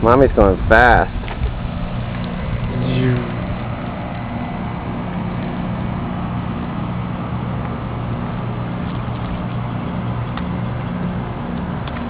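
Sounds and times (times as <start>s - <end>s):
bicycle tyres rolling: 1.1s - 5.6s.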